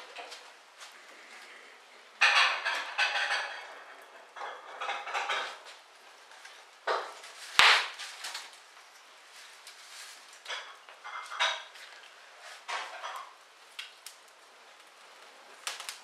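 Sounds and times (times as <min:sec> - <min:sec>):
hard objects clattering and knocking: 0:02.2 - 0:05.7.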